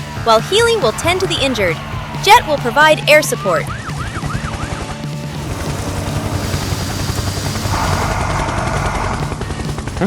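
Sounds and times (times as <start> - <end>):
helicopter engine drone: 0.0 - 10.0
helicopter rotor chop: 0.0 - 10.0
rushing hiss: 5.3 - 9.1.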